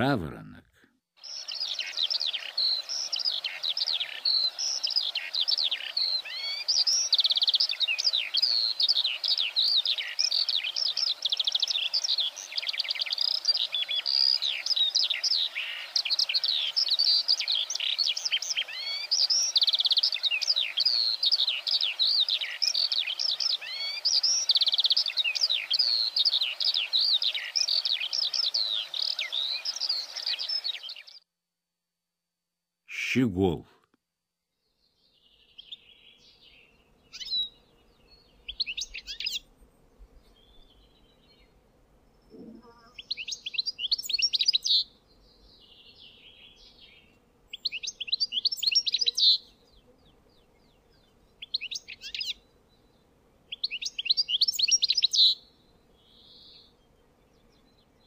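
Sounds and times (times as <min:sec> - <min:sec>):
skylark singing: 0:47.5 - 0:49.4, 0:53.5 - 0:55.4.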